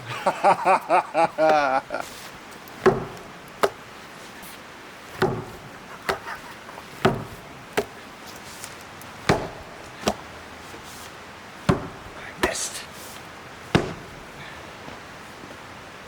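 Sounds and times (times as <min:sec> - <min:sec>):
axe chopping log: 0:01.4 - 0:04.4, 0:05.0 - 0:10.5, 0:11.6 - 0:14.6
sharp wood knock: 0:02.8 - 0:03.8, 0:05.2 - 0:06.4, 0:07.0 - 0:08.0, 0:09.3 - 0:10.2, 0:11.7 - 0:12.9, 0:13.7 - 0:14.3.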